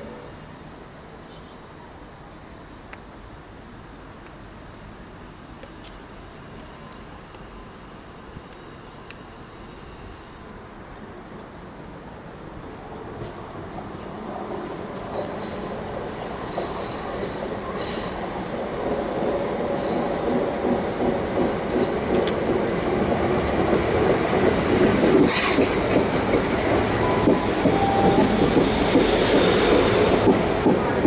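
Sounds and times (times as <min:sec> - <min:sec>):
electric train arriving: 0:04.0 - 0:31.0
train wheels and brakes squealing: 0:15.1 - 0:18.4, 0:24.6 - 0:31.0.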